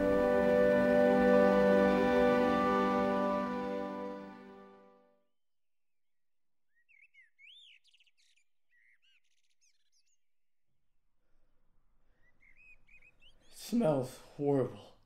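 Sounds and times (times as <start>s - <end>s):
faint bird chirping: 6.6s - 10.4s, 11.2s - 14.5s.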